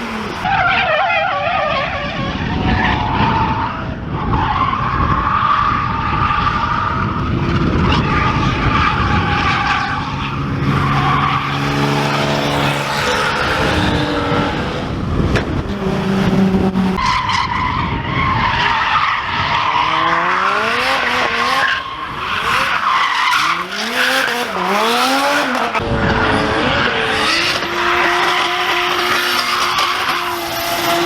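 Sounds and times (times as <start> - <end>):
car engine revving hard: 0.0 - 0.5, 7.6 - 17.0, 19.8 - 31.0.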